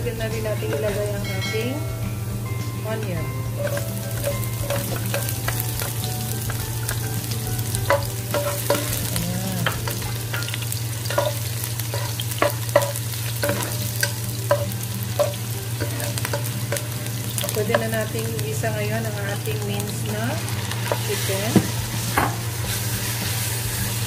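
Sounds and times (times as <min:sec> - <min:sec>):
onion and garlic sizzling in oil: 0:00.0 - 0:24.0
wooden spatula scraping pot: 0:03.6 - 0:16.8.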